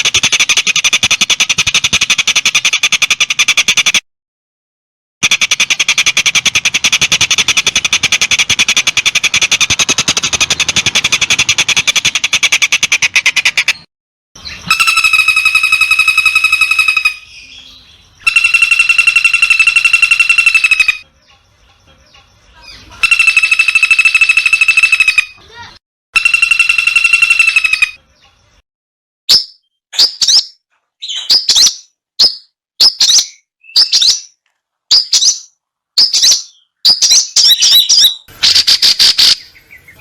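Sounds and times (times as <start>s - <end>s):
fast rattling animal trill: 5.2s - 13.6s, 18.2s - 22.2s, 22.8s - 25.4s, 26.2s - 28.0s
buzzy animal trills: 18.3s - 21.0s.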